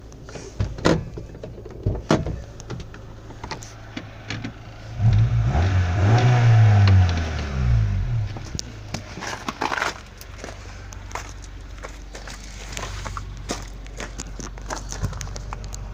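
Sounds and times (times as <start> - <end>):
sharp clicks and knocks: 0.0 - 5.3, 6.1 - 7.6
car engine idling and revving: 0.0 - 15.9.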